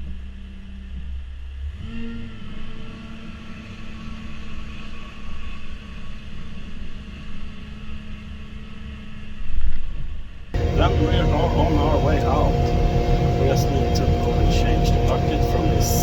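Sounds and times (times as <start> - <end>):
diesel engine running: 10.6 - 16.0.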